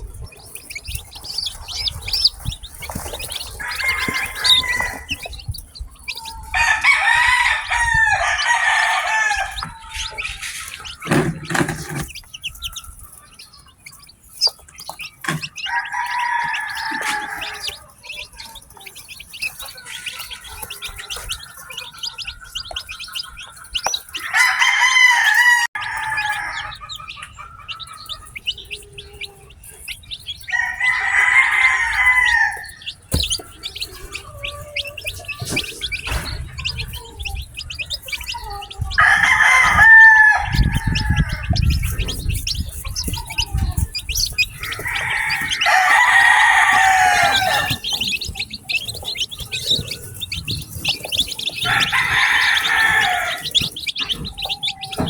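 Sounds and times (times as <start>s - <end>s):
chicks peeping: 0.0s - 55.0s
rooster crowing: 1.1s - 5.4s, 6.4s - 12.0s, 15.3s - 18.3s, 23.9s - 28.2s, 30.5s - 33.0s, 38.4s - 50.2s, 50.8s - 53.7s.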